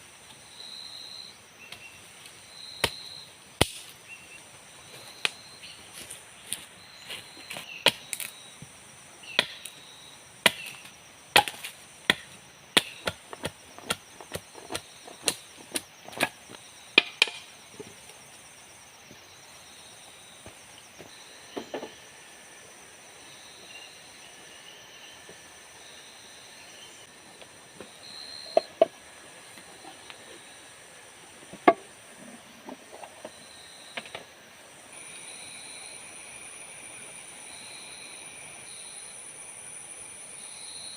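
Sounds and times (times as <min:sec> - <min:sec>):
blade chopping wood: 0:10.4 - 0:16.4
high-pitched insect drone: 0:18.4 - 0:31.0, 0:34.8 - 0:40.9.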